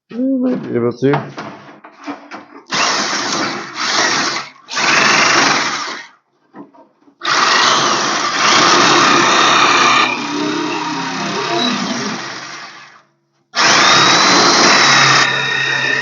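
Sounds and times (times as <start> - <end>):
electric metal shear cutting: 7.2 - 13.0, 13.6 - 16.0.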